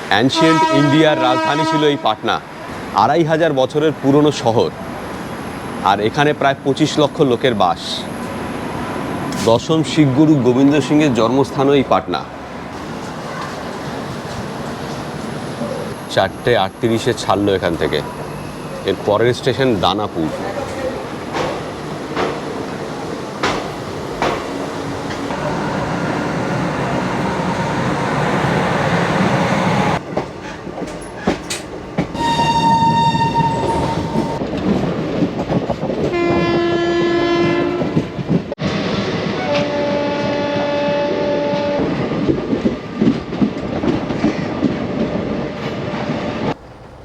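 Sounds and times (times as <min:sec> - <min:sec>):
locomotive horn blasts: 0:00.2 - 0:02.4, 0:32.1 - 0:34.4, 0:36.1 - 0:38.0, 0:39.4 - 0:41.9
train wheels clattering over rails: 0:12.6 - 0:36.2.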